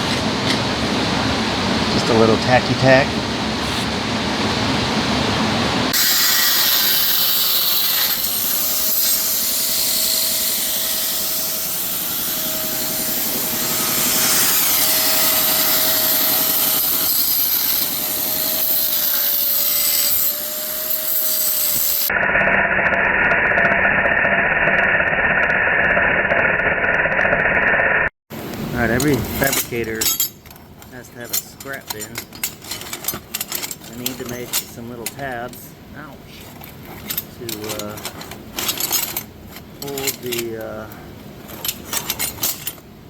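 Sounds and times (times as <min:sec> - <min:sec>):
muffled tool sound: 0:03.6 - 0:04.0, 0:28.8 - 0:42.9
power tool grinding metal: 0:06.0 - 0:22.1.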